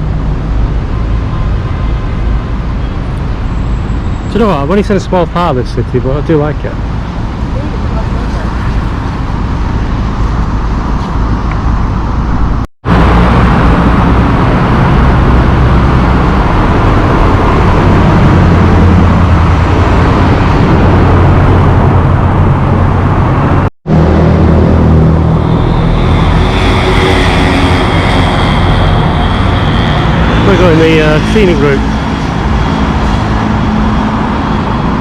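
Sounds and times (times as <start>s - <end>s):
road traffic rumbling: 0.0s - 35.0s.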